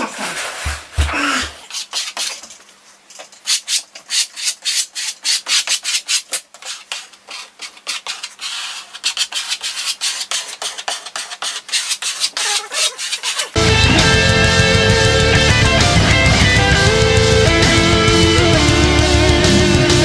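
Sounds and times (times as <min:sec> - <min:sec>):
hand tool scraping wood: 0:00.0 - 0:13.6.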